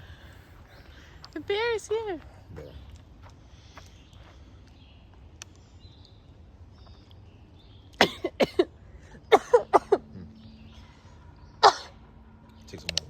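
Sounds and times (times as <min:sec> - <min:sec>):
person coughing: 0:08.0 - 0:08.7, 0:09.3 - 0:10.3, 0:11.6 - 0:12.0.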